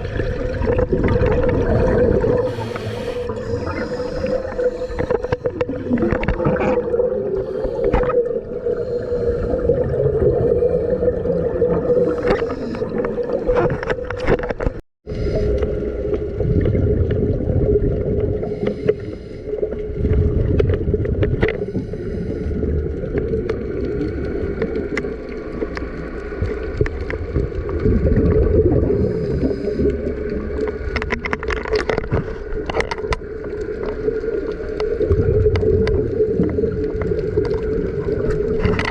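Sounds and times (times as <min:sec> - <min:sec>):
bubbling and gurgling: 0:00.0 - 0:38.9
underwater hum: 0:00.0 - 0:38.9
underwater clicks: 0:00.6 - 0:08.4, 0:11.7 - 0:14.8, 0:20.1 - 0:21.7, 0:23.0 - 0:28.4, 0:29.8 - 0:38.9.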